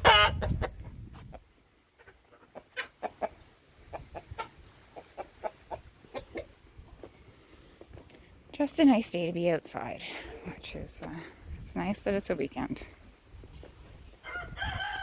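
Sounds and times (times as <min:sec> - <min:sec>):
hens clucking: 0:00.0 - 0:08.1.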